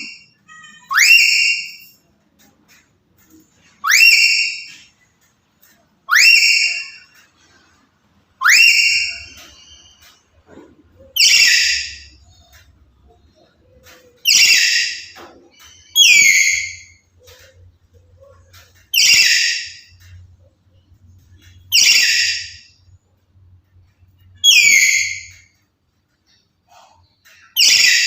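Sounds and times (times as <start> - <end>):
parrot whistled calls: 0.6 - 2.0, 3.8 - 4.9, 6.1 - 7.2, 8.4 - 10.0, 11.2 - 12.1, 14.2 - 17.0, 18.9 - 19.9, 21.7 - 22.7, 24.4 - 25.5, 27.6 - 28.0.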